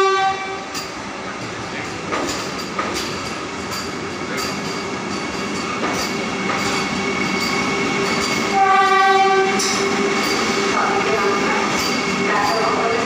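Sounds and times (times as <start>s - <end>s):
train horn: 0.0s - 0.8s, 8.4s - 13.0s
train rolling rumble: 0.0s - 13.0s.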